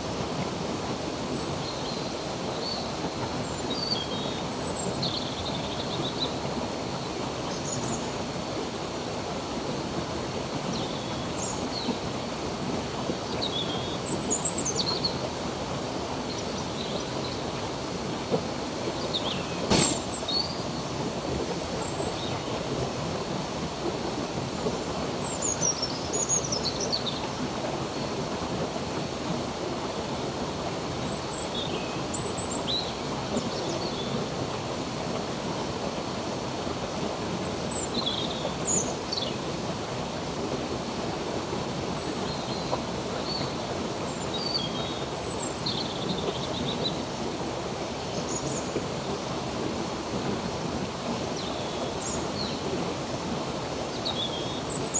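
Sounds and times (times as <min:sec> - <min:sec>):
stream flowing: 0:19.2 - 0:22.1.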